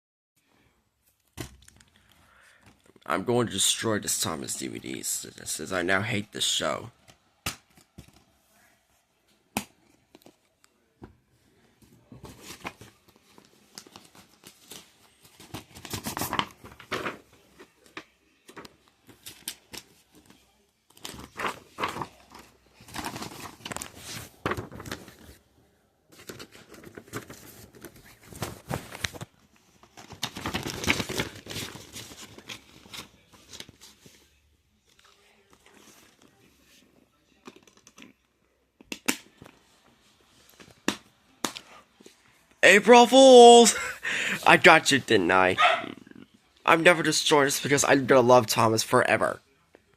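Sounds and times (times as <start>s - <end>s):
crinkling and rustling handling: 3.8s - 43.7s.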